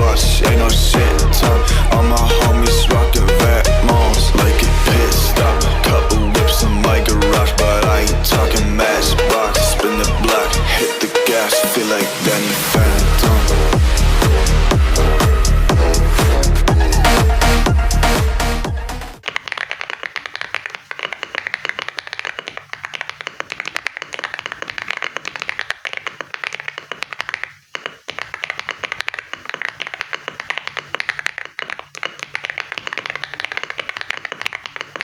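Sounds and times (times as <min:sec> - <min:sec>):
fast typing on mechanical keyboard: 0:19.2 - 0:35.0.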